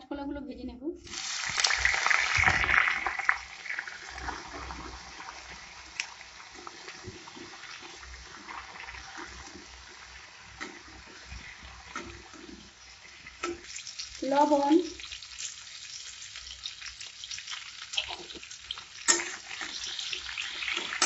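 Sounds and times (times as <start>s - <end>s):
food sizzling in oil: 1.0s - 21.0s
metal spatula scraping pan: 19.1s - 19.9s.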